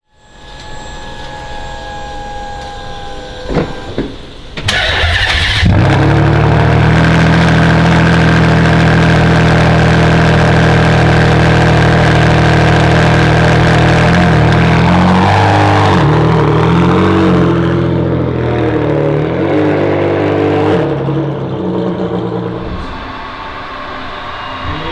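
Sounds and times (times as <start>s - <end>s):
faint whine: 0.0s - 5.5s, 20.8s - 24.9s
car engine starting and idling: 0.2s - 24.9s.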